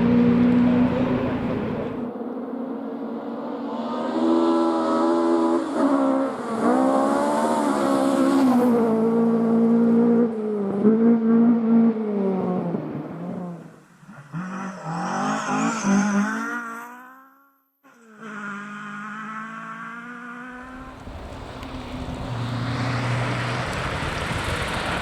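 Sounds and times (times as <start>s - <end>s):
rally car engine through gears: 0.0s - 2.1s, 17.9s - 25.0s.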